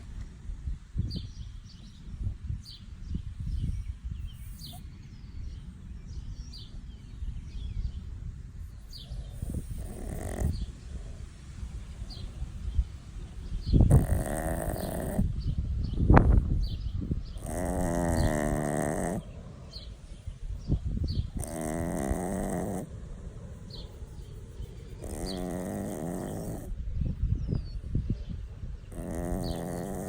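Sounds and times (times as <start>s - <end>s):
faint birds chirping: 0.0s - 30.0s
small dog snoring: 8.9s - 11.2s, 13.8s - 15.3s, 17.3s - 19.4s, 21.2s - 22.9s, 25.0s - 26.8s, 28.9s - 30.0s.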